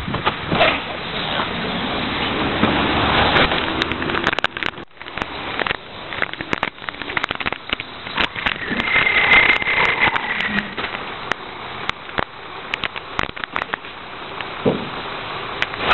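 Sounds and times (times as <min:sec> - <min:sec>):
high squeal: 0:07.9 - 0:11.3.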